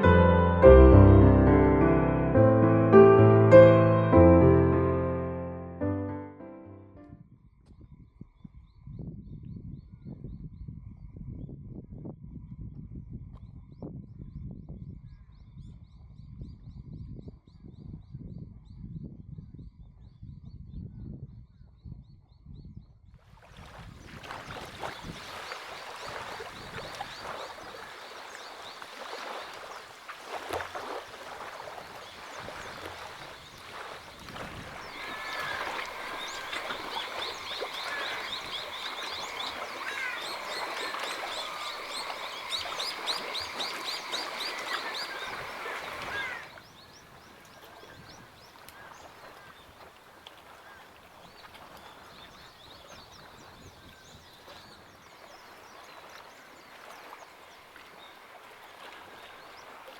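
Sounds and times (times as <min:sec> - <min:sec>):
birds chirping: 0:24.4 - 0:58.4.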